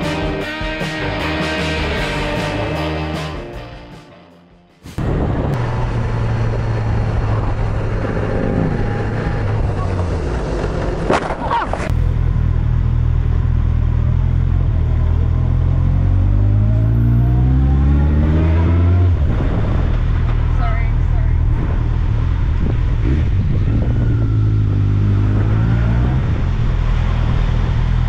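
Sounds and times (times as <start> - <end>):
road and wind noise: 4.8 - 28.0
motorcycle engine running: 11.9 - 15.8.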